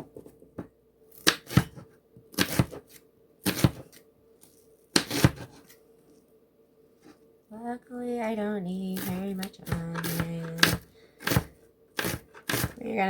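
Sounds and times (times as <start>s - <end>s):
knife cutting onion on board: 1.1s - 4.0s, 4.9s - 5.8s, 8.9s - 12.8s.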